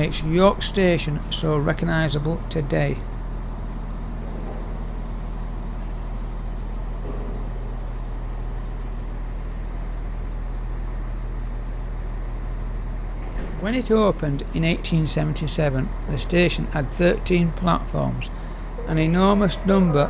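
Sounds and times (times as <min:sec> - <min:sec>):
idling engine hum: 0:00.0 - 0:20.0.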